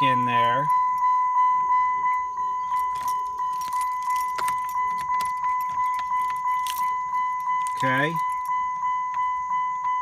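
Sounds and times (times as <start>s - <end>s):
car warning chime pinging: 0.0s - 10.0s
keys jangling: 2.5s - 9.2s.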